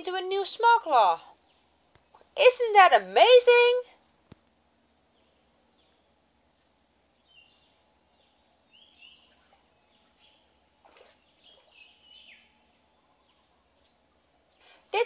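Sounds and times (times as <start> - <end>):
faint bird chirps: 7.2 - 15.0.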